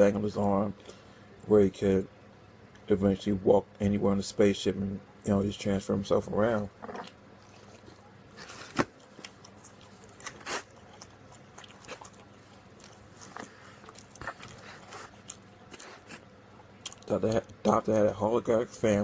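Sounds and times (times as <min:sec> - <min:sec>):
soft crunches: 0:06.6 - 0:17.1
man chewing and biting: 0:06.8 - 0:17.1.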